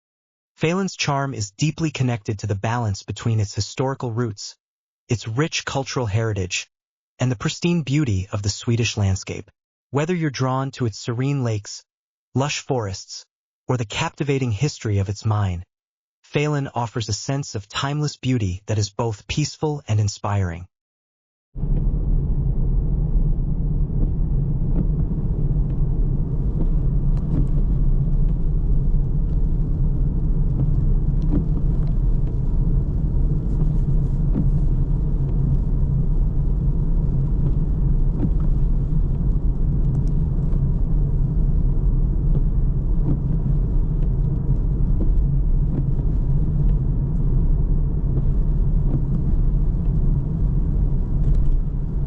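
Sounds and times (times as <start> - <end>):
car road and engine rumble: 21.6 - 52.0.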